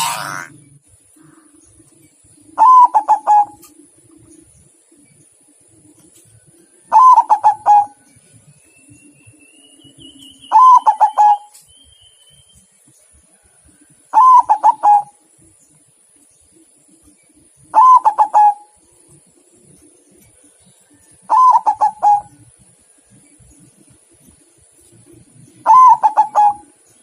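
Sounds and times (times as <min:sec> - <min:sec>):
dove cooing: 0:01.2 - 0:04.5, 0:06.6 - 0:08.1, 0:10.4 - 0:11.6, 0:14.1 - 0:15.2, 0:17.6 - 0:18.9, 0:21.2 - 0:22.5, 0:25.6 - 0:26.8.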